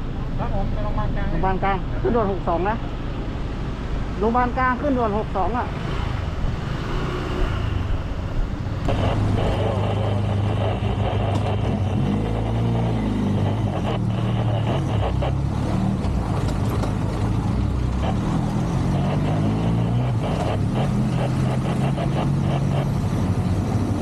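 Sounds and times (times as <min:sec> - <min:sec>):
road and wind noise: 0:00.0 - 0:24.0
motorcycle engine: 0:05.4 - 0:24.0.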